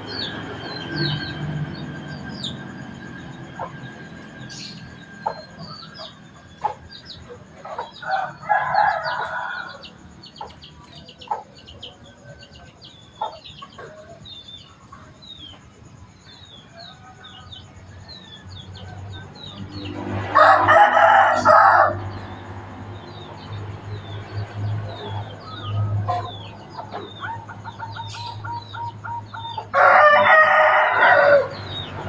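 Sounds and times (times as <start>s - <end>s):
small birds chirping: 0.0s - 20.1s, 21.9s - 29.8s, 31.4s - 32.0s
rooster crowing: 7.8s - 10.1s, 20.2s - 22.4s, 27.2s - 32.0s.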